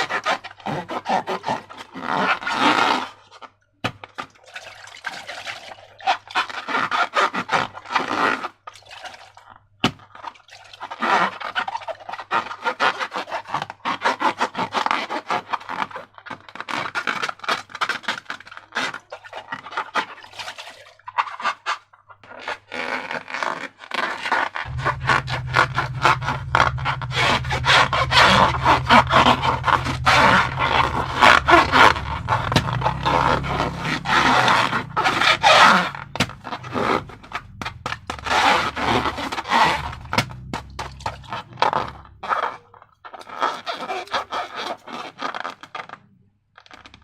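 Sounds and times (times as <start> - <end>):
slime squishing and scraping: 16.6 - 46.0.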